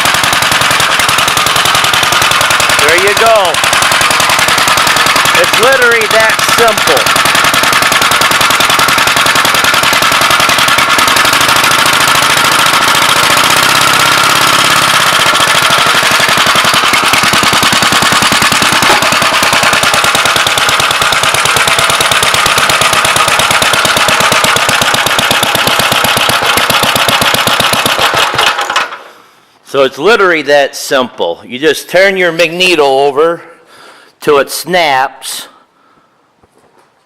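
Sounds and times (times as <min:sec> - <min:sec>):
single-cylinder engine running: 0:00.0 - 0:29.1.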